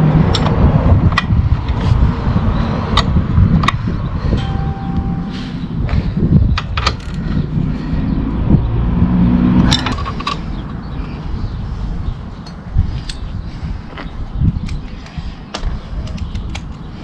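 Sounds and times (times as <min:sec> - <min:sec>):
steady low rumble: 0:00.8 - 0:16.8
metal tools clinking: 0:06.8 - 0:07.9.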